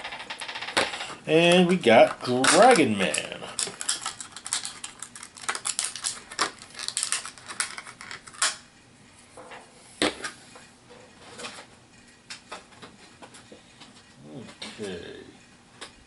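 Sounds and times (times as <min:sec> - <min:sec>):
plastic figures clicking and clattering: 0:00.0 - 0:08.6.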